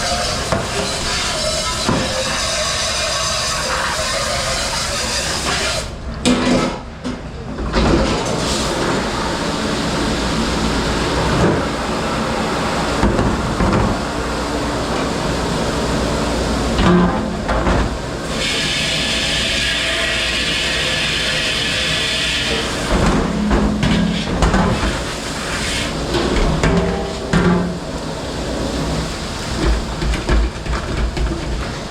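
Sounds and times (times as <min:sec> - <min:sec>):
dish machine hissing: 0:00.0 - 0:06.0, 0:08.2 - 0:31.9.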